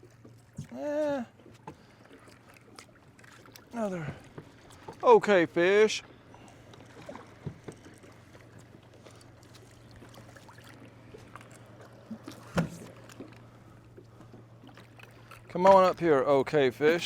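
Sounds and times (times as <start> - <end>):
faint clicks and light knocks: 6.7 - 10.2.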